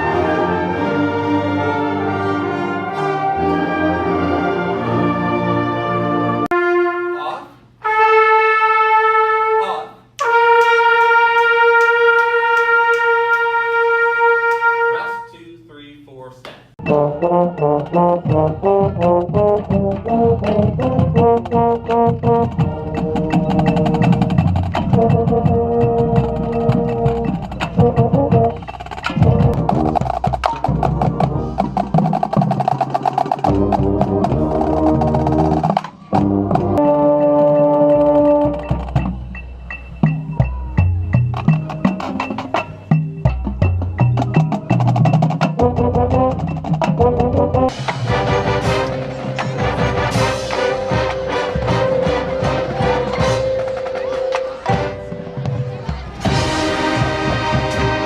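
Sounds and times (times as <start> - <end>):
marching band holding a note: 0.0 - 31.7, 44.2 - 58.0.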